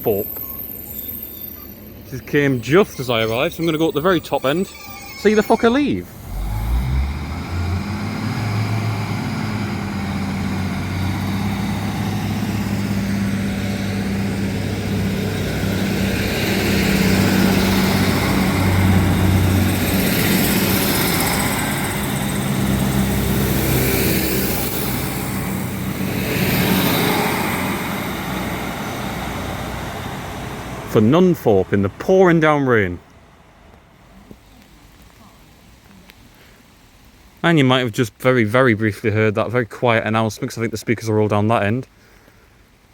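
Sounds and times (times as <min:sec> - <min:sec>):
train running noise: 0:00.0 - 0:31.0
diesel train engine running: 0:00.0 - 0:32.8.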